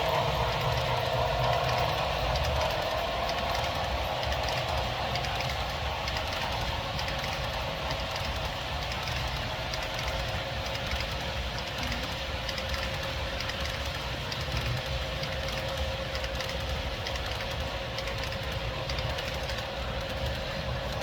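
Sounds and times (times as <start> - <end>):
steam locomotives rumbling: 0.0 - 21.0.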